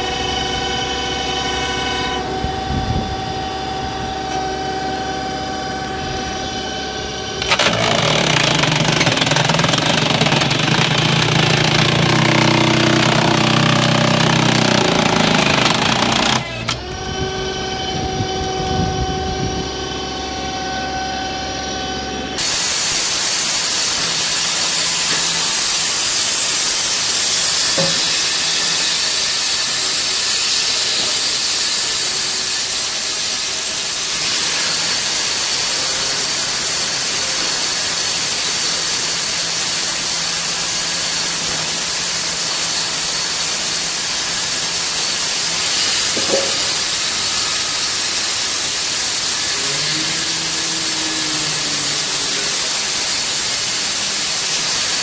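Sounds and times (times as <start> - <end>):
wood-processing machinery running: 0.0 - 55.0
steady hiss: 22.4 - 55.0.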